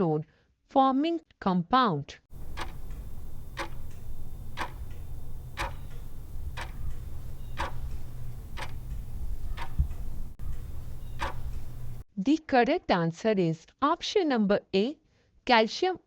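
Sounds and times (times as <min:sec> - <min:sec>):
clock ticking: 0:02.3 - 0:12.0
low steady hum: 0:02.3 - 0:12.0.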